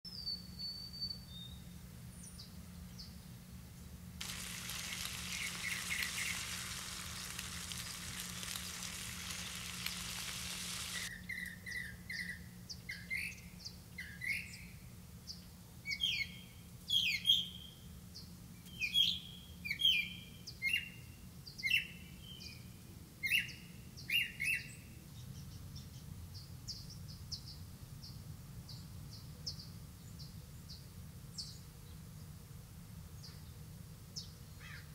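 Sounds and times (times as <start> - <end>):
birds chirping: 4.2 - 11.1
steady hiss: 4.2 - 11.1.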